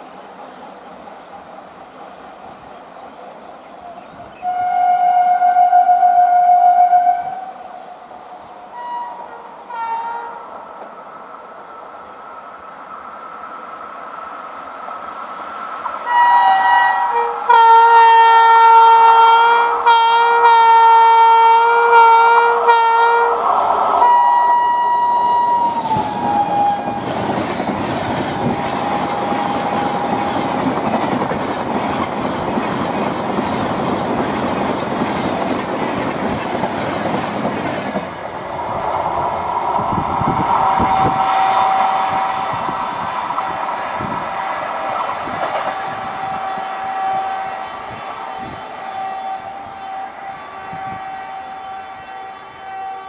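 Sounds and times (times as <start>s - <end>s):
two-tone train horn blasts: 4.4s - 7.7s, 8.7s - 10.5s, 16.0s - 27.2s, 28.3s - 30.7s, 40.6s - 44.6s, 45.2s - 53.0s
long train horn note: 4.4s - 7.8s, 8.7s - 10.5s, 16.0s - 27.2s, 28.3s - 30.9s, 39.3s - 53.0s
train wheel clatter: 25.4s - 44.1s.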